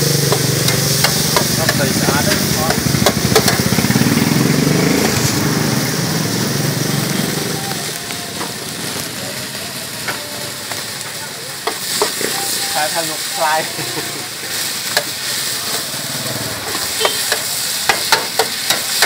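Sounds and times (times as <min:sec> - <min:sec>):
noodles sizzling on a hot pan: 0:00.0 - 0:19.0.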